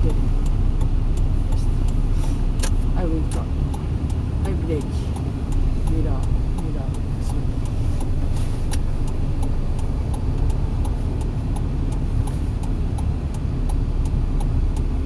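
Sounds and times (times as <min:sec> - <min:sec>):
car engine and road rumble: 0:00.0 - 0:15.0
regular ticking: 0:00.0 - 0:15.0.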